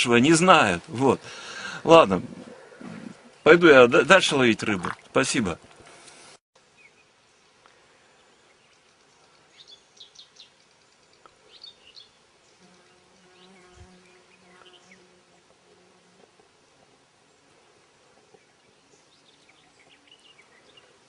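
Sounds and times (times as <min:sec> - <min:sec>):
small birds chirping: 0:06.6 - 0:15.5, 0:16.5 - 0:21.0
flying insect buzzing: 0:12.6 - 0:16.5.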